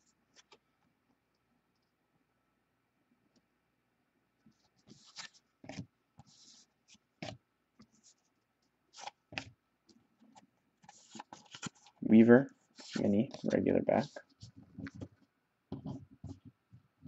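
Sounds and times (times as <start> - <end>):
cards scraping and rustling: 4.6 - 7.4, 8.9 - 9.5, 10.2 - 15.2.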